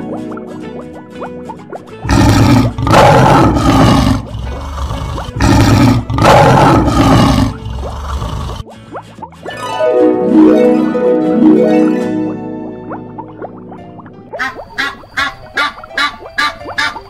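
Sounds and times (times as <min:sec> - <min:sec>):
lion roaring: 0:02.1 - 0:08.6
plucked harp music: 0:08.6 - 0:14.4.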